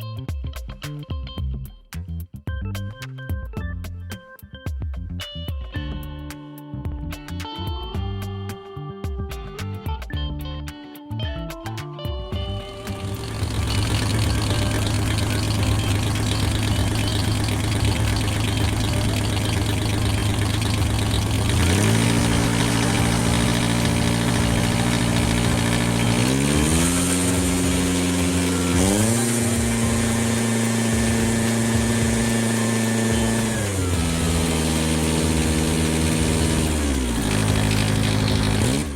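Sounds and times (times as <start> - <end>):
vehicle engine: 12.5 - 38.9.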